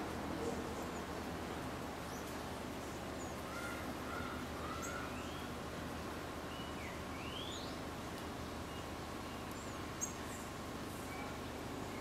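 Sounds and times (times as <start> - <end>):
steady background hiss: 0.0 - 12.0
birds chirping: 2.0 - 5.6, 6.4 - 12.0.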